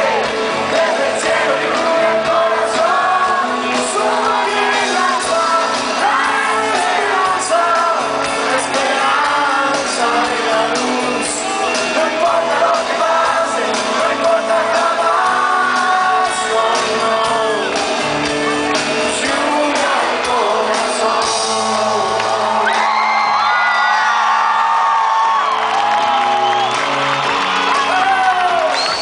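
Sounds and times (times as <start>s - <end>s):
lead vocal singing: 0.0s - 23.6s
live pop-rock band: 0.0s - 29.0s
audience shouting and whooping: 22.0s - 29.0s.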